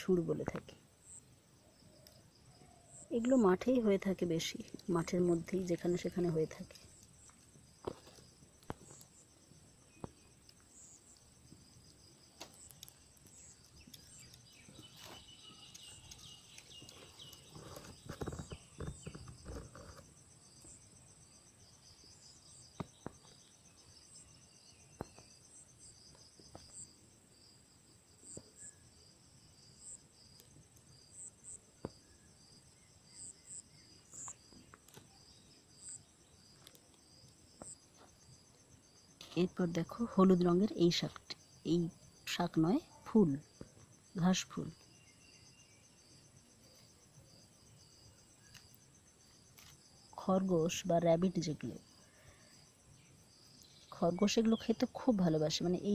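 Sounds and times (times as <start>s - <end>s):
crickets chirping: 0.0s - 55.9s
rustling and knocks: 7.8s - 9.0s, 16.9s - 20.1s.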